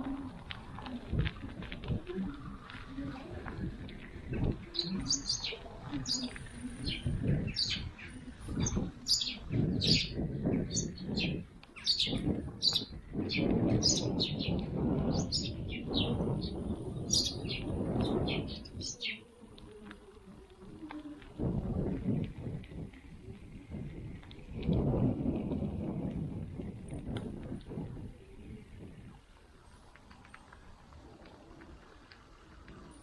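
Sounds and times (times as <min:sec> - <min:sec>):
low rumbling noise: 0:00.0 - 0:33.0
small birds chirping: 0:01.8 - 0:21.2.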